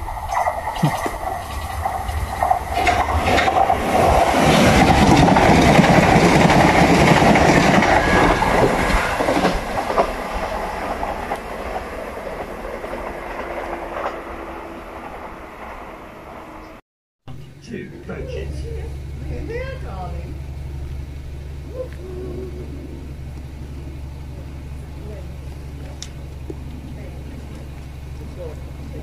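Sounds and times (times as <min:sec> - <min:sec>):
train wheels clattering on rails: 0:00.0 - 0:16.8.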